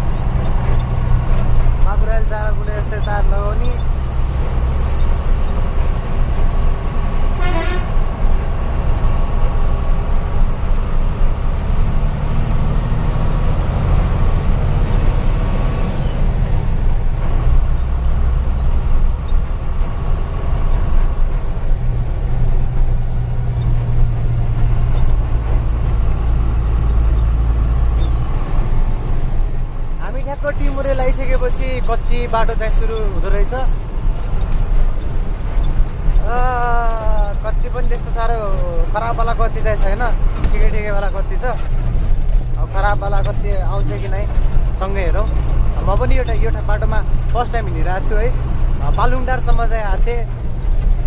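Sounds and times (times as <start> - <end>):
truck engine droning from cab: 0.0 - 51.0
short horn toot: 7.4 - 8.0.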